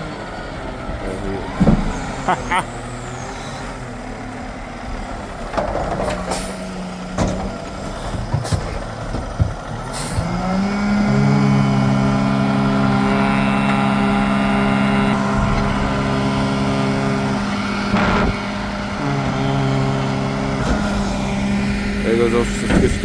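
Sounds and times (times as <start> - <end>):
heavy diesel engine: 0.0 - 23.0
knocks and clanks: 0.6 - 3.0, 5.3 - 10.6, 15.2 - 23.0.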